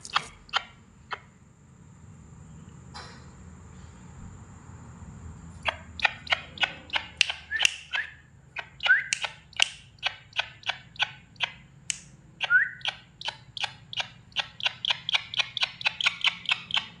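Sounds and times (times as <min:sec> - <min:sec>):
bird sharp chirping calls: 0:00.0 - 0:01.4, 0:05.6 - 0:17.0
short rising whistles: 0:07.3 - 0:08.2, 0:08.8 - 0:09.3, 0:12.4 - 0:12.9.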